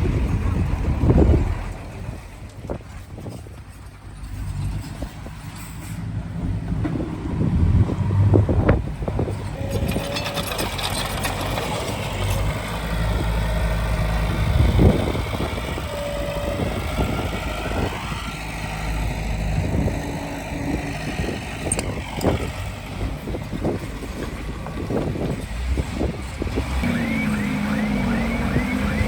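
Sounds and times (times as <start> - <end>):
diesel engine running: 0.0 - 29.0
metallic clanks: 9.3 - 12.6, 20.7 - 26.4
short squeals: 9.4 - 12.5.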